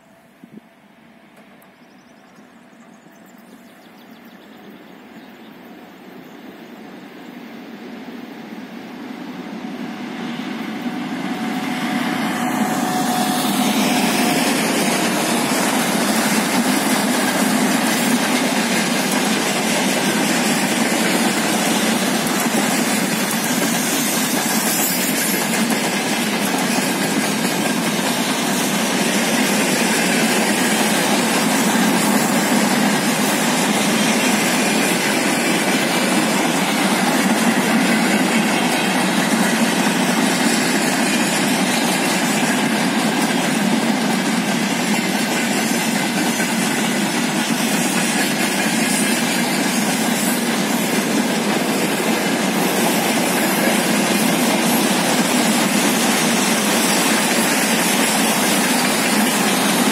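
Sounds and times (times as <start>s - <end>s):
freight wagons rattling on rails: 12.8s - 59.9s.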